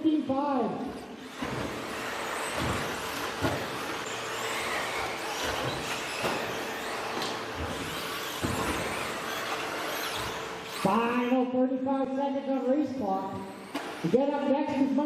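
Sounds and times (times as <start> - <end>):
rc truck electric motors whining: 1.2 - 11.4, 13.4 - 14.1.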